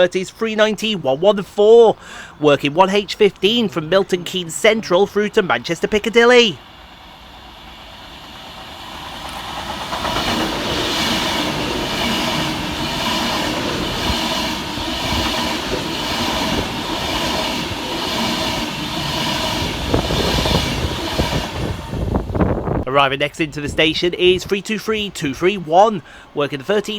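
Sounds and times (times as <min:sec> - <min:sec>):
electric train passing fast: 0:00.0 - 0:26.9
wheel clatter: 0:06.6 - 0:22.8.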